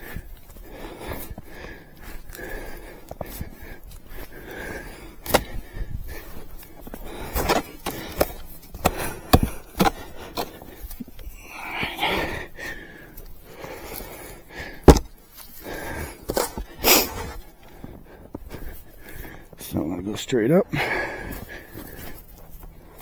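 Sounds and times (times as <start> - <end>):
heavy breath: 0.0 - 19.6, 20.7 - 23.0
snow shovel scraping snow: 7.1 - 11.0, 15.8 - 17.5.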